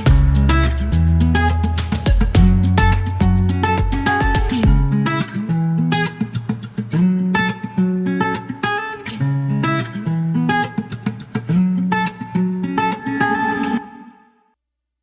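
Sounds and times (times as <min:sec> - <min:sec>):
held bass notes: 0:00.0 - 0:05.0
strummed guitar chords: 0:00.0 - 0:05.6.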